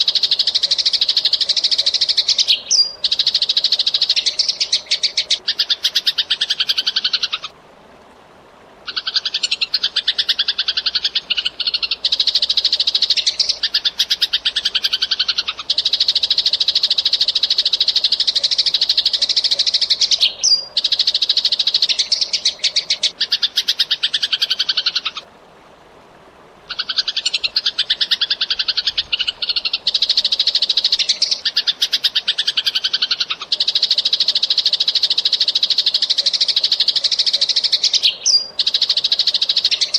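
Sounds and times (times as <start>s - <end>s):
sparrows chirping: 0.2s - 7.5s, 9.0s - 25.1s, 36.1s - 39.9s.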